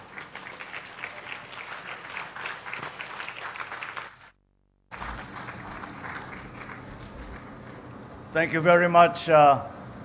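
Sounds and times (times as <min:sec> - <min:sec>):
audience applauding: 0:00.0 - 0:04.3, 0:04.9 - 0:07.6.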